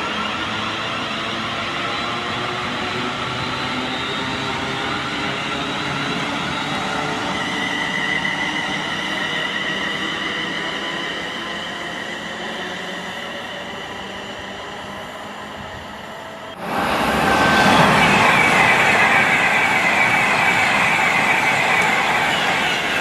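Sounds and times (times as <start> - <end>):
train rail noise: 0.0 - 23.0
high whine: 16.5 - 23.0.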